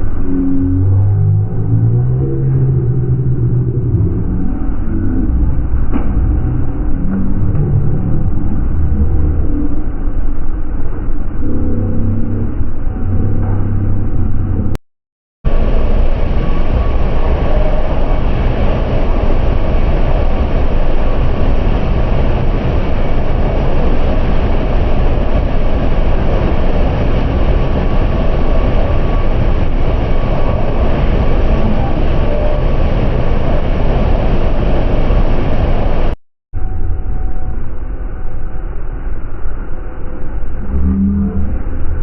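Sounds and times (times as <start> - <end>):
vehicle rumble and rushing: 0.0 - 14.8
faint steady whine: 15.5 - 42.0.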